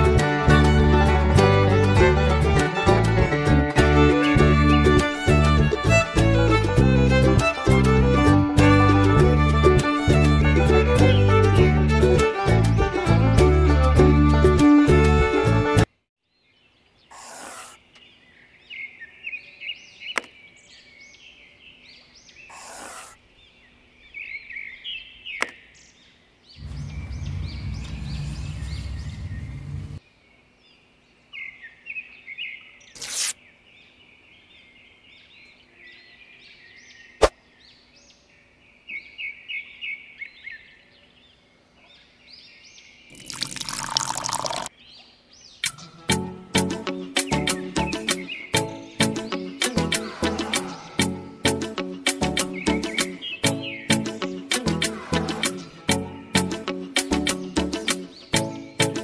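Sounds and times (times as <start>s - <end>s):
birds chirping: 16.2s - 59.0s
water poured into metal tray: 43.1s - 44.7s.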